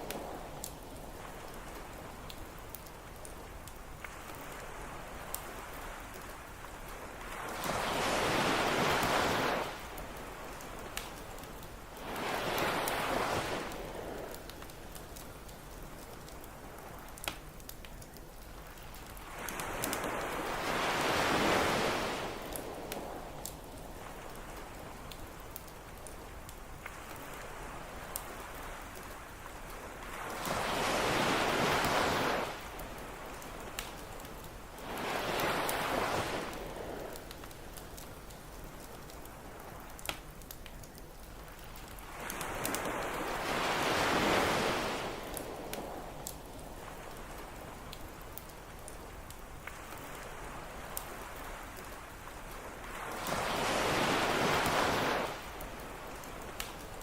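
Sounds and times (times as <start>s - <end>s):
campfire crackling: 0.0s - 57.0s
ocean wave breaking: 7.2s - 11.1s, 12.0s - 14.3s, 19.3s - 23.2s, 30.0s - 33.8s, 34.8s - 37.2s, 42.0s - 46.0s, 52.8s - 56.6s.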